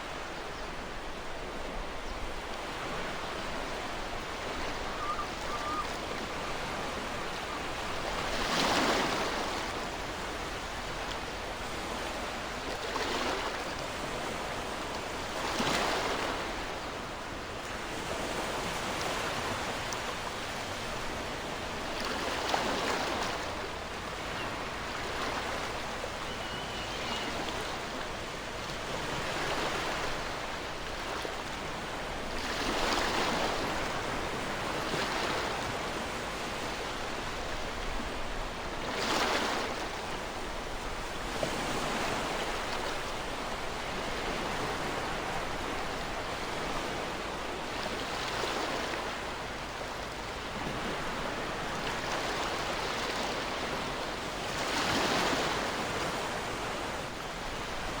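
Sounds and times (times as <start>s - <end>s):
ocean waves breaking: 2.6s - 11.1s, 50.0s - 58.0s.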